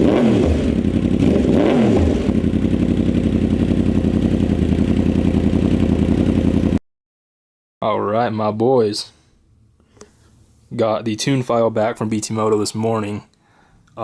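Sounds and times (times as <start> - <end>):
motorcycle engine revving and idling: 0.0 - 6.8.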